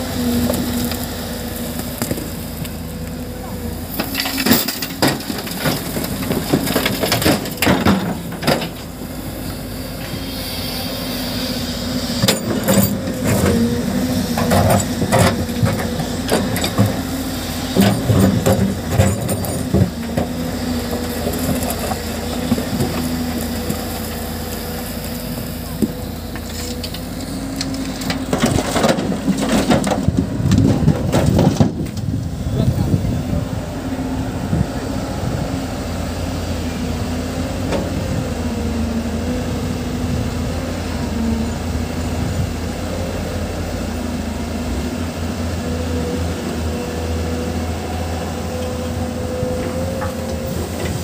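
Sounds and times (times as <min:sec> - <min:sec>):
rock and dirt crunching: 0:00.0 - 0:10.1, 0:12.1 - 0:33.9
diesel engine running: 0:00.0 - 0:51.0.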